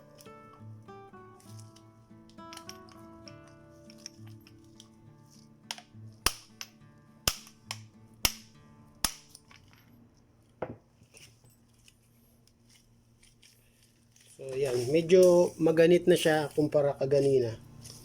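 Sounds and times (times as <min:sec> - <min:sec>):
low background music: 0:00.0 - 0:09.9
hammer striking metal socket: 0:05.7 - 0:09.8.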